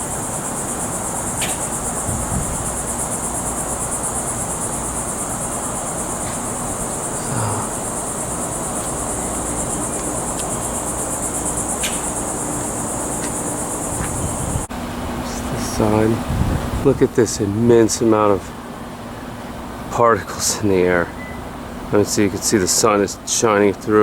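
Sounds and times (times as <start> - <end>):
insects trilling: 0.0 - 14.7.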